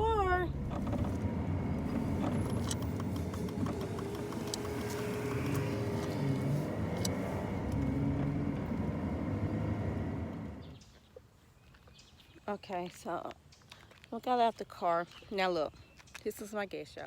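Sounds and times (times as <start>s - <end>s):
car engine and road rumble: 0.0s - 10.9s
light clicks: 2.1s - 7.9s.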